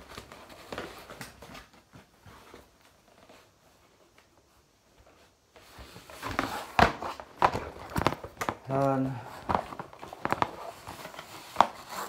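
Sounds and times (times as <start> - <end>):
unboxing clicks and rustles: 5.6 - 12.0.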